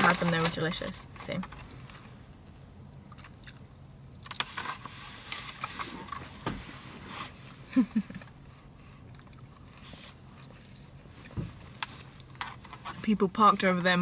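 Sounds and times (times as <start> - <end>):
person chewing crunchy food: 3.1 - 4.4.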